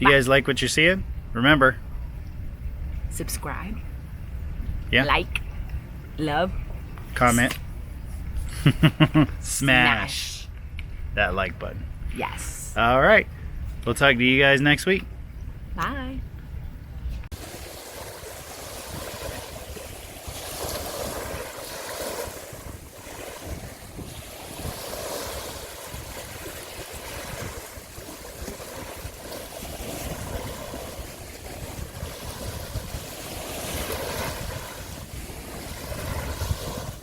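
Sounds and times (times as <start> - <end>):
waves washing: 0.0 - 0.8, 4.9 - 10.6, 17.3 - 37.0
wind buffeting microphone: 15.0 - 37.0.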